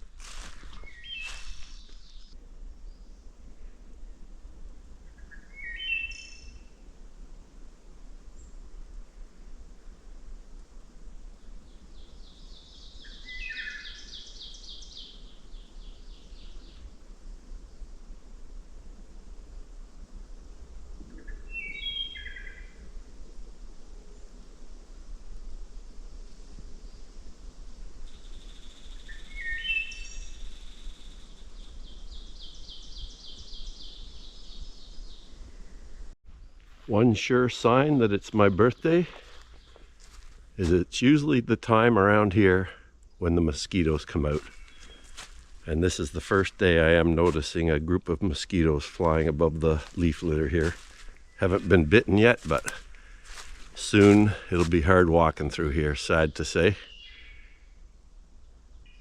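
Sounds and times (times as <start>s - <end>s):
high bird chirps: 0.8s - 2.4s, 21.2s - 22.6s
bird whistling notes: 21.2s - 22.7s
bird warbled phrase: 51.4s - 52.8s.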